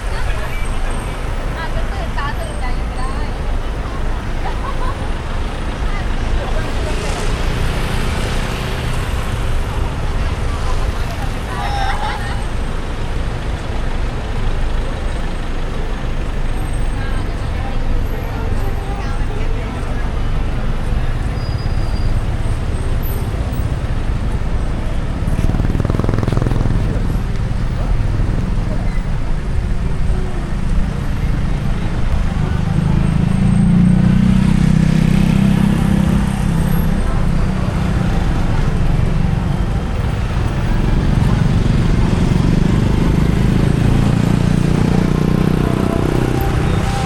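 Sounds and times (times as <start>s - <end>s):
road and engine rumble: 0.0s - 47.0s
fast-pulsing engine: 25.1s - 28.7s.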